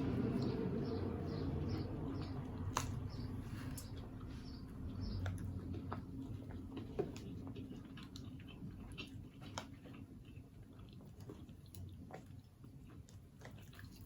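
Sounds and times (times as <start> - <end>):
steady low hum: 0.0 - 10.5
person chewing and eating: 0.0 - 14.0.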